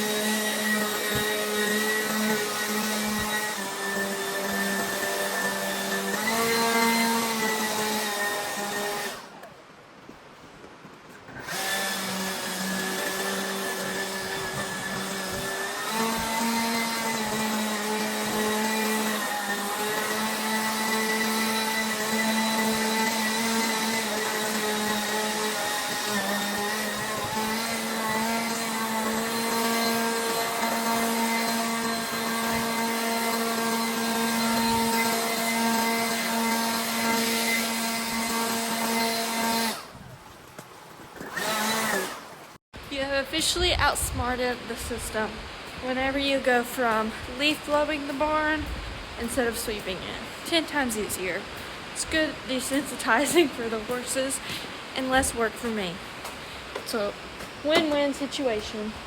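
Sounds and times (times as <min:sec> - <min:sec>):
leaf blower whining: 0:00.0 - 0:09.5, 0:11.3 - 0:39.9, 0:41.2 - 0:43.0.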